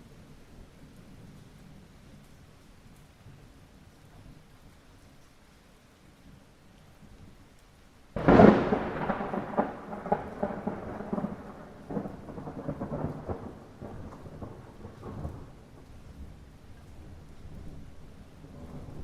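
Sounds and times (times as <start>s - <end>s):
steady light rain: 0.0s - 19.0s
thunderclap rolling and crackling: 8.1s - 19.0s.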